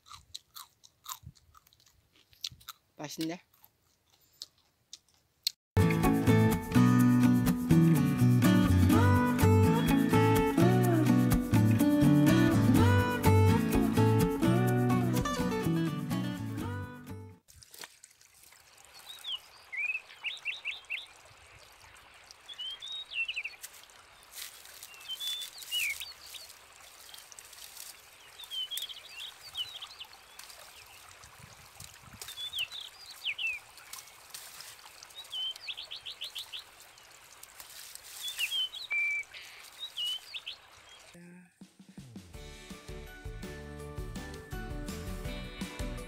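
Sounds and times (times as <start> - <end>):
songbird singing: 18.8 - 31.3, 32.2 - 37.3, 38.0 - 41.2.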